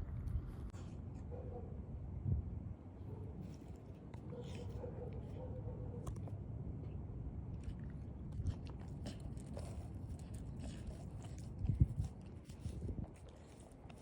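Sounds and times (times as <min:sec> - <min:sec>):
puppy chewing meat: 0:03.4 - 0:14.0.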